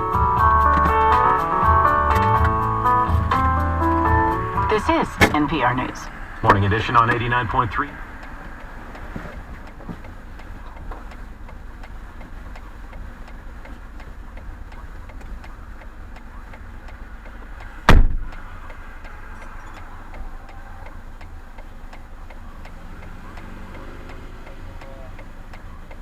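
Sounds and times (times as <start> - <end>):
car crash bang: 0.0 - 7.7, 17.9 - 18.3
faint regular ticking: 0.0 - 26.0
low vehicle rumble: 0.0 - 26.0.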